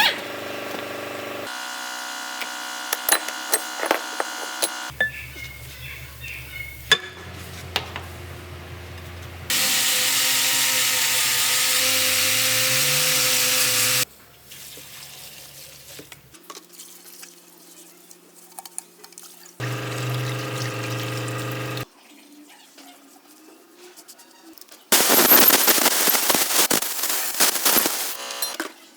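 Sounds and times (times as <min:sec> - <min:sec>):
power tool running: 0:00.1 - 0:04.9, 0:09.5 - 0:14.0, 0:19.6 - 0:21.8, 0:25.0 - 0:28.6
loud steady hiss: 0:24.9 - 0:28.2.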